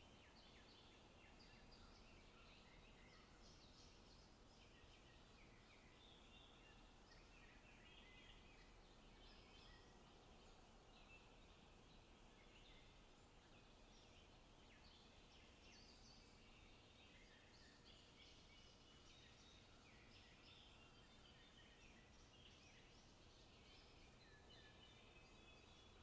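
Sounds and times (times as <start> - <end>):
low steady background hiss: 0.0 - 26.0
songbirds chirping and trilling: 0.0 - 26.0.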